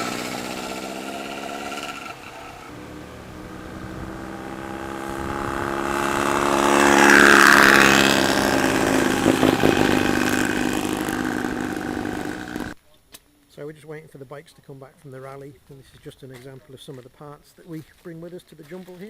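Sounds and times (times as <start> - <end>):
motorcycle riding past: 0.0 - 12.8.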